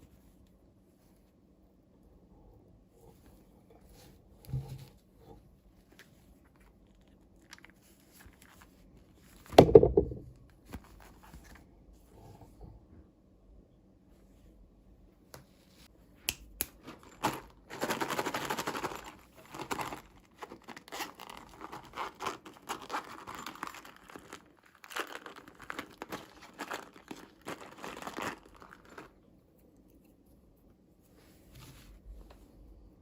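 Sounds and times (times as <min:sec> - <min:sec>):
plastic packaging crinkling: 0:16.8 - 0:29.2.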